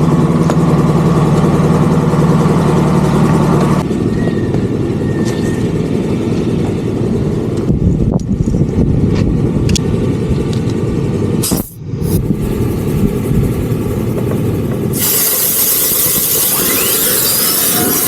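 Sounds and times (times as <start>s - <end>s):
vehicle road and engine noise: 0.0s - 18.0s
loud rushing hiss: 11.4s - 18.0s.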